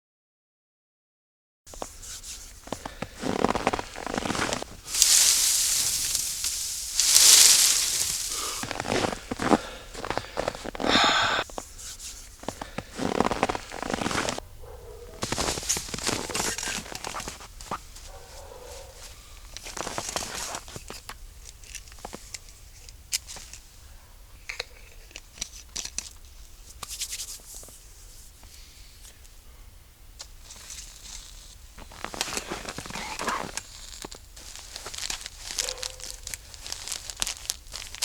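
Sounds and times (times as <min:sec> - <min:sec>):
rustling and crinkling: 0:01.7 - 0:23.7, 0:30.2 - 0:38.0.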